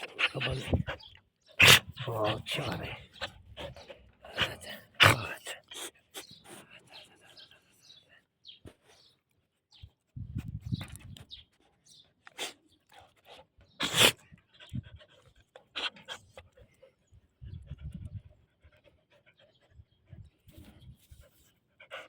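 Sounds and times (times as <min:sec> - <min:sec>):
dog panting: 0:00.0 - 0:08.1, 0:11.4 - 0:22.0.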